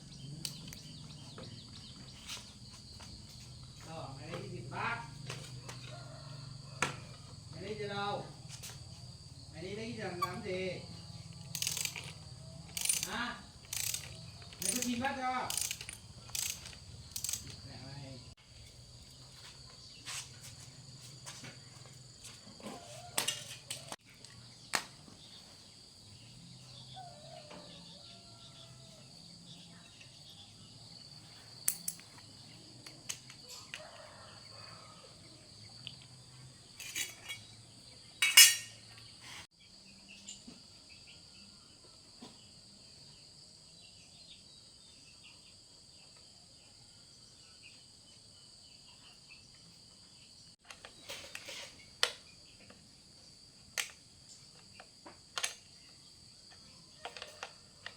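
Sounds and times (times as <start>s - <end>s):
insects chirring: 0.0s - 57.9s
metallic clinks and knocks: 11.5s - 17.6s, 38.2s - 38.8s.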